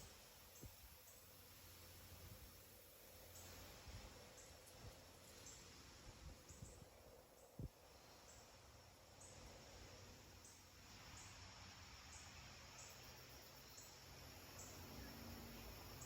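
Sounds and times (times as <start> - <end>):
insect chirping: 0.0 - 16.0
soft steady hiss: 0.0 - 16.0.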